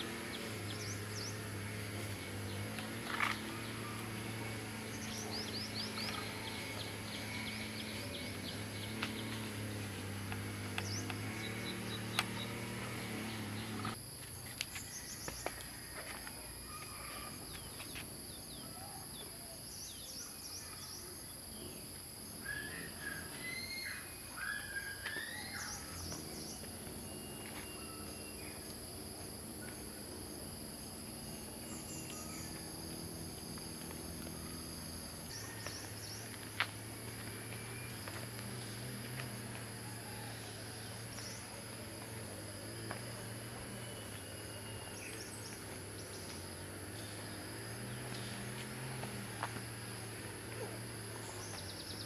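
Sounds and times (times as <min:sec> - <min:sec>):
bird chirps and whistles: 0:22.5 - 0:25.9.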